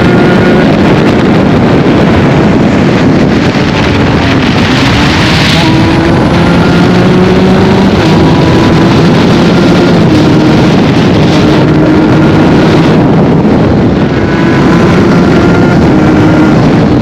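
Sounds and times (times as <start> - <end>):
motorcycle engine at speed: 0.0 - 17.0
wind noise on microphone: 0.0 - 17.0.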